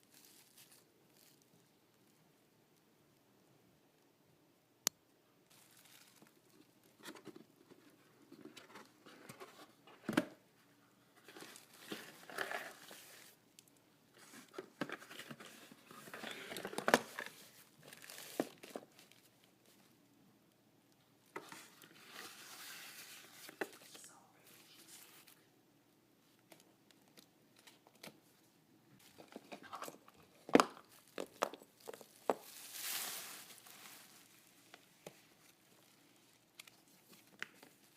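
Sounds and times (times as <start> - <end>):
packaging crinkling: 29.0 - 34.9.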